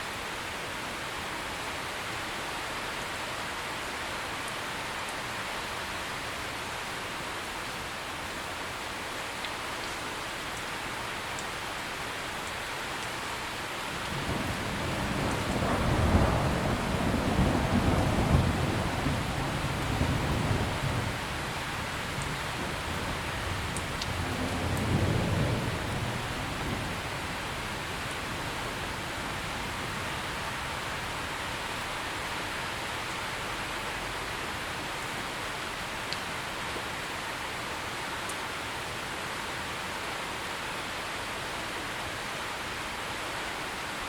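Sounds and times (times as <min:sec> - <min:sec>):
steady rain: 0:00.0 - 0:44.0
distant thunder rumbling: 0:14.0 - 0:31.1.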